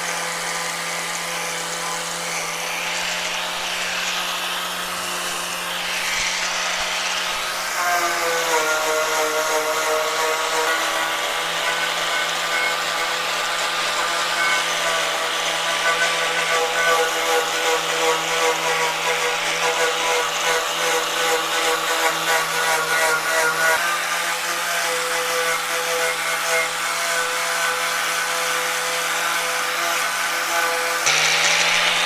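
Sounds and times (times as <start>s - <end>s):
power tool motor whining: 0.0s - 23.6s, 30.0s - 32.0s.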